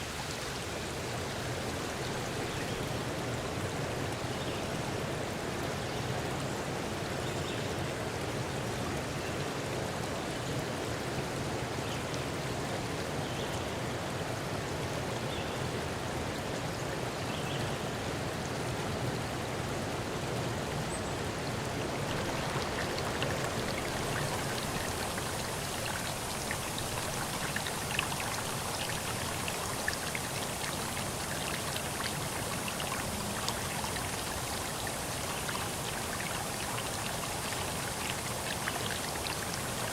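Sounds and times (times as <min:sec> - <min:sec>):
running water rushing: 0:00.0 - 0:07.2, 0:07.8 - 0:39.9
water drips and splashes: 0:17.9 - 0:39.9.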